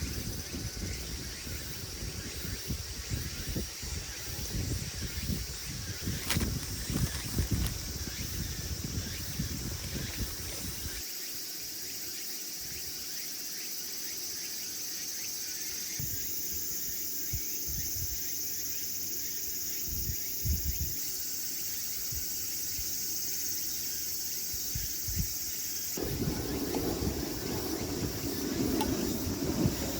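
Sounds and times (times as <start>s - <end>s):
insects calling: 0.0s - 29.9s
low thumps: 26.0s - 29.9s.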